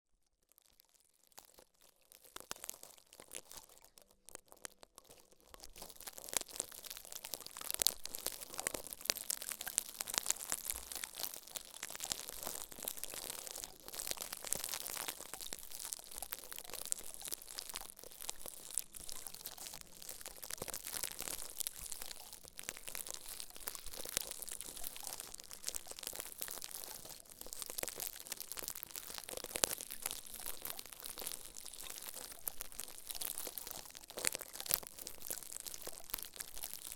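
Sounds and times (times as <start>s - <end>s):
close-up crinkling and crunching: 0.2s - 36.9s.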